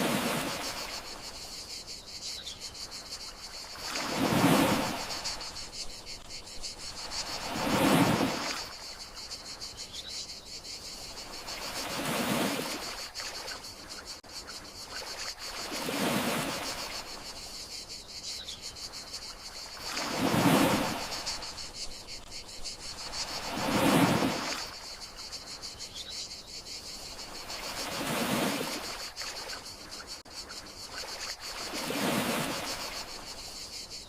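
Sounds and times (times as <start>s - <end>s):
sea waves washing: 0.0s - 1.3s, 3.7s - 5.8s, 6.8s - 8.9s, 11.3s - 13.2s, 15.3s - 17.3s, 19.8s - 21.7s, 23.0s - 24.8s, 27.4s - 29.5s, 31.0s - 33.3s
crickets chirring: 0.0s - 34.0s.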